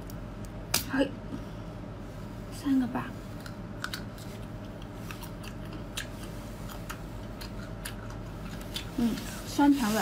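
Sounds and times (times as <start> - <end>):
crunchy chewing: 3.4 - 8.9.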